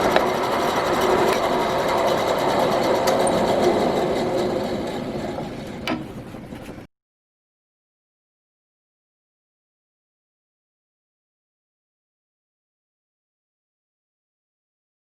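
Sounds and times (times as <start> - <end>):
power tool motor running: 0.0 - 5.9.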